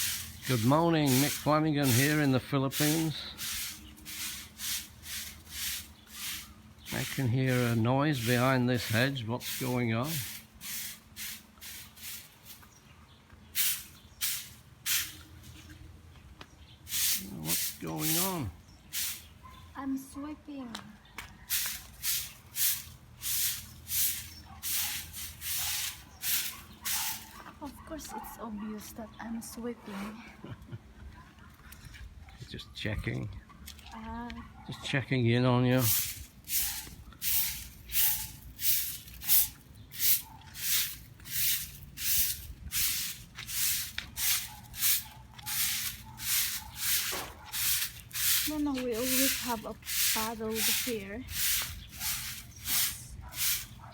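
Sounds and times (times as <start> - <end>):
broom sweeping ground: 0.0 - 12.8, 13.5 - 15.8, 16.9 - 19.4, 21.4 - 27.8, 35.7 - 53.9.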